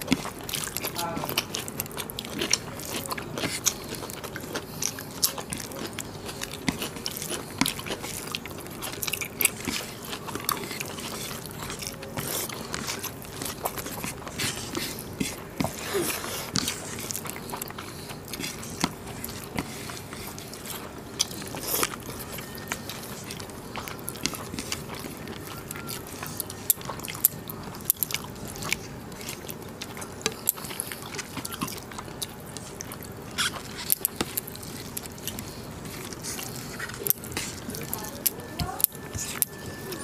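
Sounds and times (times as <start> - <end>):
wet chewing and mouth clicks: 0.0 - 40.0.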